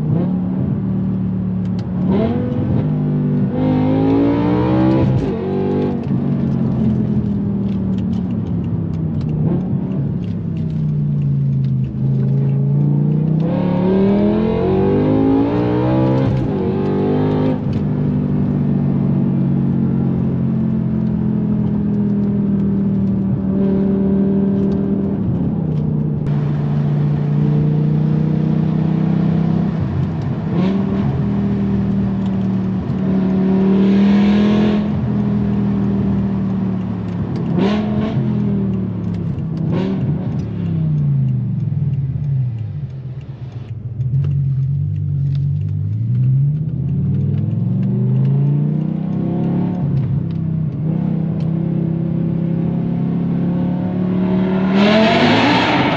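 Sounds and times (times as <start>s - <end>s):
car engine revving: 0.0s - 55.9s.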